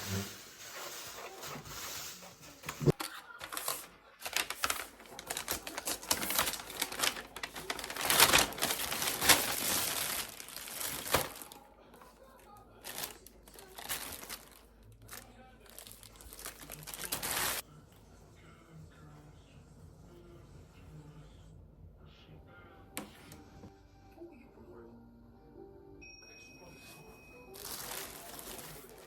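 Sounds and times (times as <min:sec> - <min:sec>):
packaging crinkling and tearing: 0:00.0 - 0:11.6, 0:12.8 - 0:17.6, 0:27.6 - 0:29.0.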